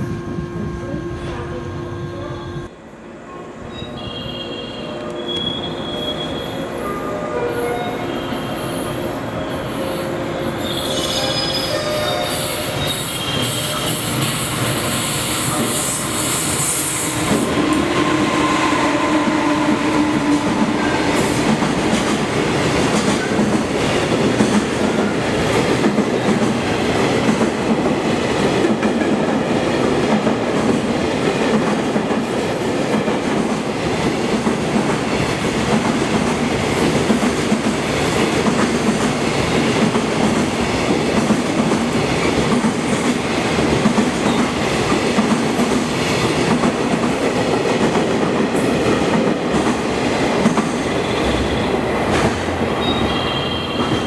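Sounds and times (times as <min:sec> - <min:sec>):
train wheels rumbling on rail: 0:03.6 - 0:54.0
high squeal: 0:03.7 - 0:17.2
clickety-clack over rail joints: 0:19.7 - 0:33.3, 0:33.9 - 0:53.1.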